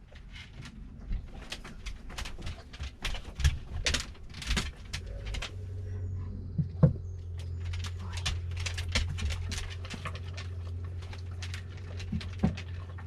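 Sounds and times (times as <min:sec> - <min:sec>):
steady low hum: 0:00.0 - 0:13.0
handling rustles and scrapes: 0:07.3 - 0:13.0.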